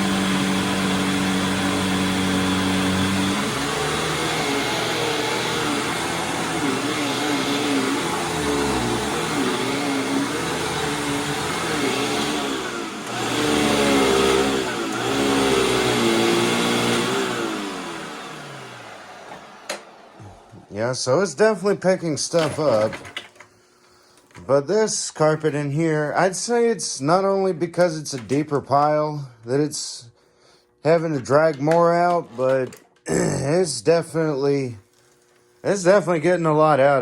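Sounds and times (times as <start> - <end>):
vacuum cleaner running on carpet: 0.0 - 22.9.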